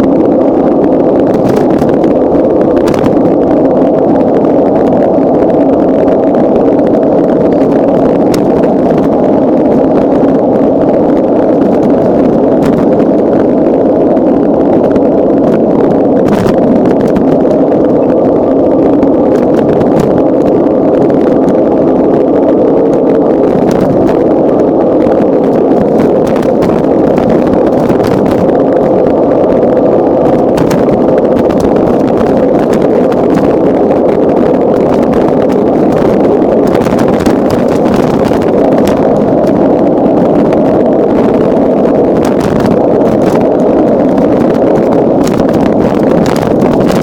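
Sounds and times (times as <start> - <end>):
bicycle rolling noise: 0.0 - 47.0
wind rushing: 0.0 - 47.0.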